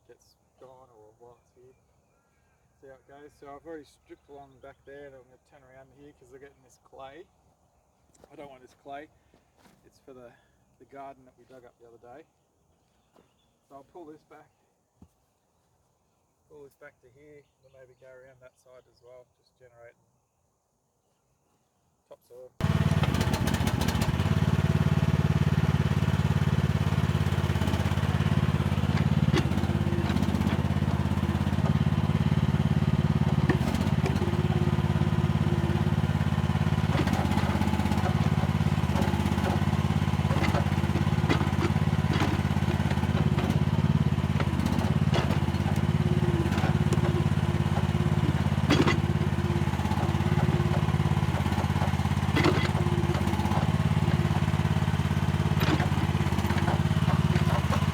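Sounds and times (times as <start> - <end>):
bucket clanking and scraping soil: 22.6 - 57.9
excavator engine running: 22.6 - 57.9.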